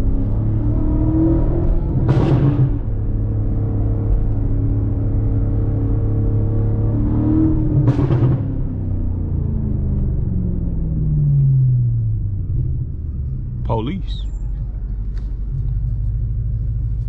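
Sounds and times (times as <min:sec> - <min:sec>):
car engine revving while driving: 0:00.0 - 0:13.6.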